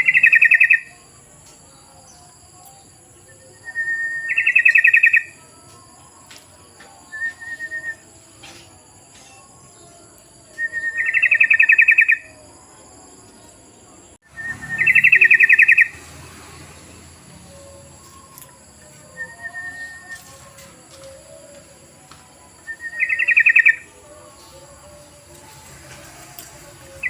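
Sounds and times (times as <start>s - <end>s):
bulbul calling: 0.0s - 1.0s, 3.5s - 5.4s, 10.6s - 12.4s, 14.3s - 16.0s, 22.7s - 24.3s.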